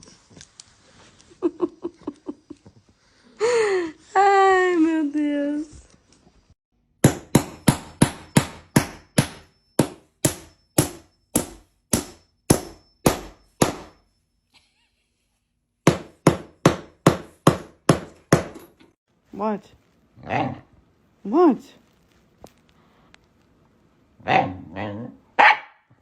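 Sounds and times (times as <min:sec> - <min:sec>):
sharp hard ringing knocks: 0:07.0 - 0:14.2, 0:15.8 - 0:18.7.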